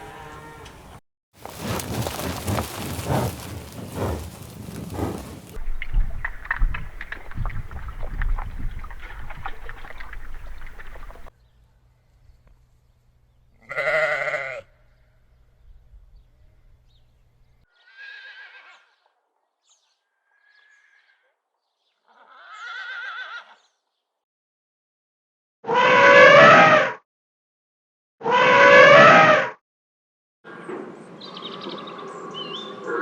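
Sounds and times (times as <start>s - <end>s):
goats or sheep bleating: 13.7s - 14.6s.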